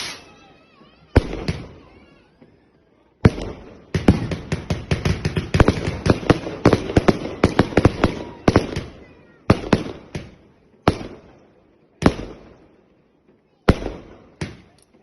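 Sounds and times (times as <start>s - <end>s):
fireworks banging: 0.0s - 2.5s, 3.2s - 15.0s.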